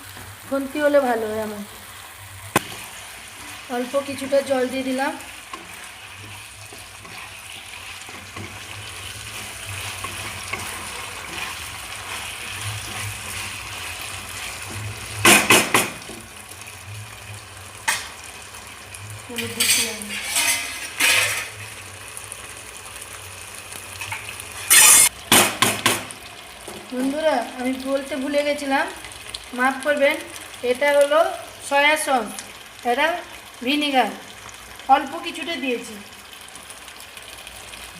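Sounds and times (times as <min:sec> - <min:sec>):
food sizzling in a pan: 0:00.0 - 0:37.9
spatula scraping a pan: 0:05.3 - 0:15.5, 0:19.4 - 0:21.6, 0:24.0 - 0:25.1.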